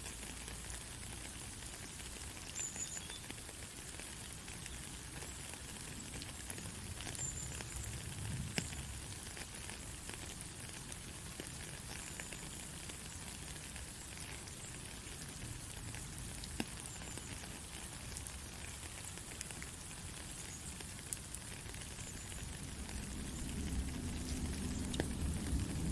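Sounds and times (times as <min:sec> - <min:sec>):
heavy rain hissing: 0:05.8 - 0:25.9.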